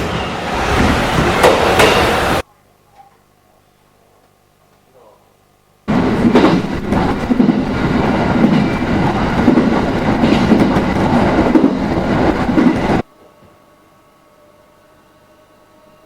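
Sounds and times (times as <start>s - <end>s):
train running on rails: 0.0s - 2.4s, 5.9s - 13.1s.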